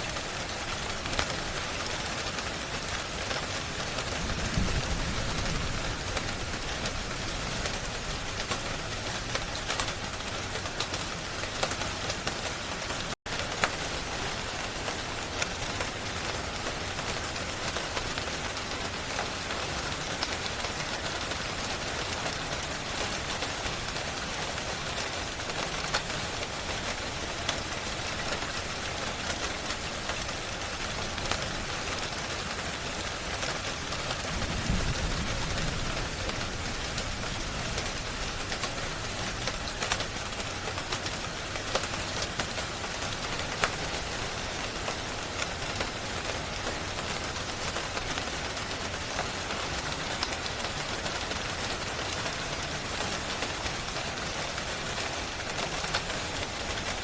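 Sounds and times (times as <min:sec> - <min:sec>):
steady rain hissing: 0:00.0 - 0:57.0
wood fire crackling: 0:24.3 - 0:50.4.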